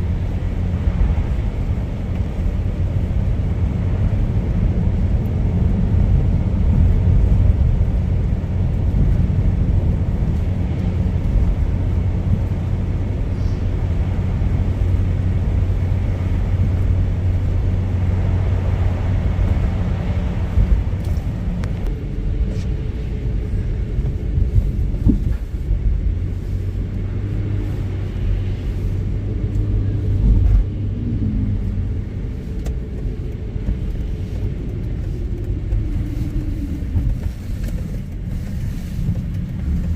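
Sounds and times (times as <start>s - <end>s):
car engine hum: 0.0s - 39.9s
road hiss: 9.8s - 39.9s.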